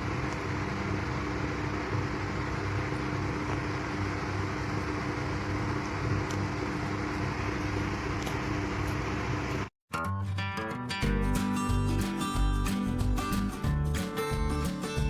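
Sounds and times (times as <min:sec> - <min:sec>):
fan or air conditioner hum: 0:00.0 - 0:09.7.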